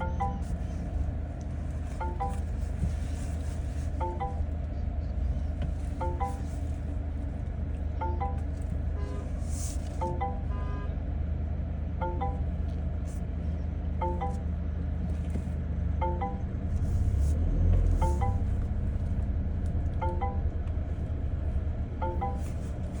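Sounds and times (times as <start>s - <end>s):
two-note chime: 0.0s - 0.6s, 12.0s - 12.6s, 14.0s - 14.6s
steady low rumble: 0.0s - 23.0s.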